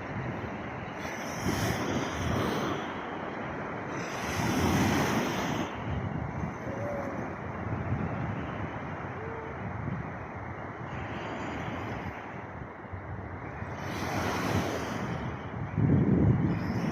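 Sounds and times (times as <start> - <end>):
sea waves washing on shore: 0.0 - 16.9
wind buffeting microphone: 0.0 - 16.9.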